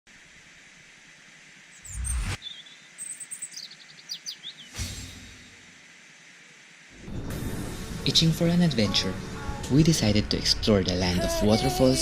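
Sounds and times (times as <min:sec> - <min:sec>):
faint outdoor ambience: 0:00.1 - 0:12.0
small birds chirping and whistling: 0:01.7 - 0:05.0.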